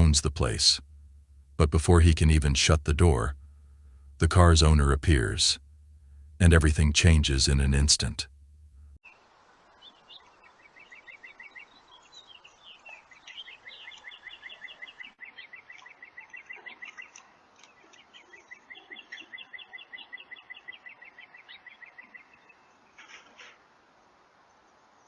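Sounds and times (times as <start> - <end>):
bird singing rapid trills: 9.0 - 23.2.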